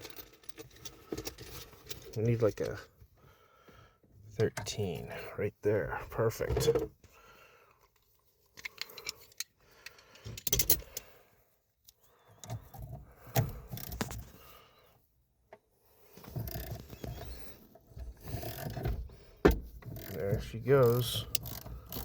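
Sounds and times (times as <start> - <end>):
hand tools clinking and rattling: 0.0 - 2.8, 8.5 - 11.0.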